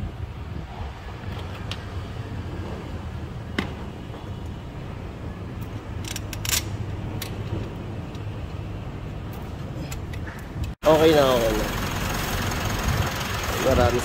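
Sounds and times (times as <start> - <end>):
car engine idling: 10.8 - 14.0.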